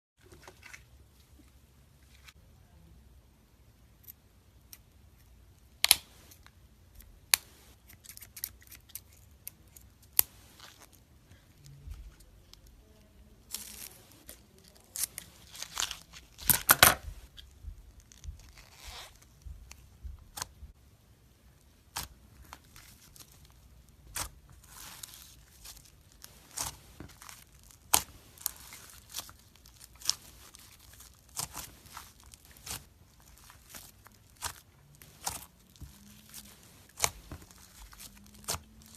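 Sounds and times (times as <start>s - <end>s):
tearing crinkling sounds: 11.6s - 16.7s, 17.4s - 19.5s, 22.0s - 38.9s.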